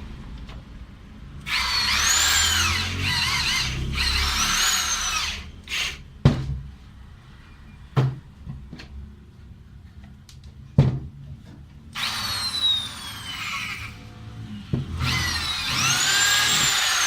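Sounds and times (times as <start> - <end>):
electric drill motor whine: 1.5 - 6.0, 12.0 - 14.0, 14.9 - 17.0.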